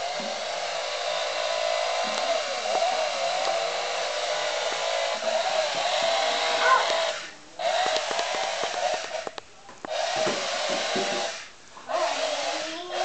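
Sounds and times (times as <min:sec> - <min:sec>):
toy chainsaw motor buzzing: 0:00.0 - 0:09.3, 0:09.9 - 0:13.0.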